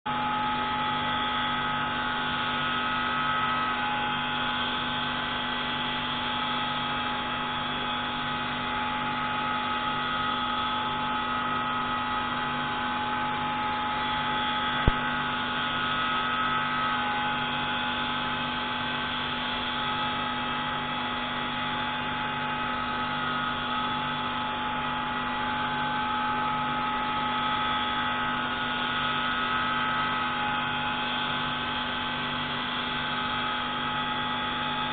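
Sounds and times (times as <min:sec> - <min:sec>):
sharp click: 0:14.8 - 0:15.0.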